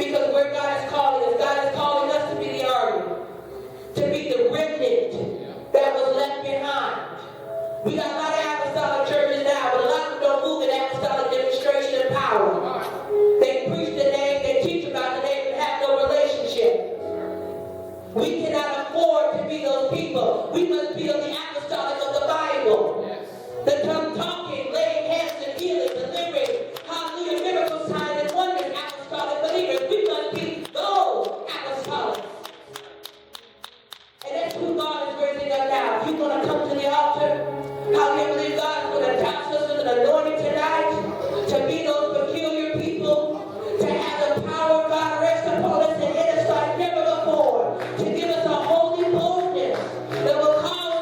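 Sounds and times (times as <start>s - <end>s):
voices singing worship music: 0.0s - 32.4s, 34.2s - 51.0s
clapping or percussion hits: 25.9s - 34.6s
voices singing worship: 34.3s - 51.0s.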